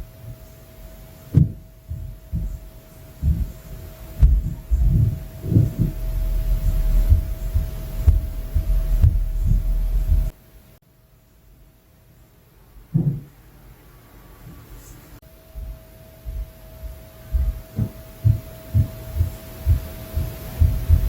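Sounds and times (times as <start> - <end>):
faint steady hum: 0.0 - 21.0
dull thuds through ceiling: 1.3 - 10.4, 12.9 - 13.4, 15.6 - 21.0.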